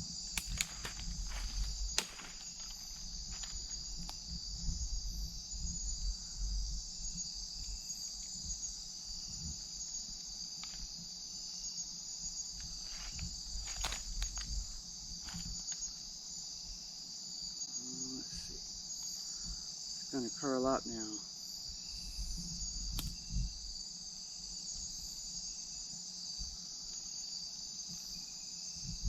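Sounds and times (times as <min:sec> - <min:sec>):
insect chorus shrilling: 0:00.0 - 0:29.0.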